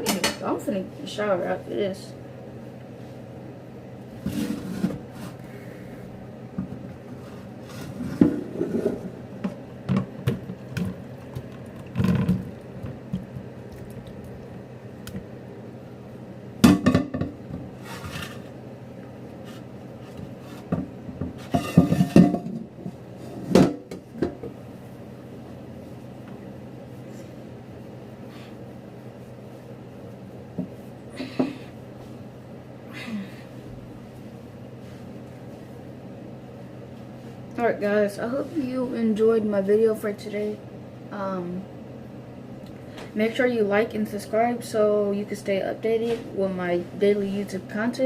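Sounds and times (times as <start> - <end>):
dishes and utensils clattering: 21.4 - 22.6.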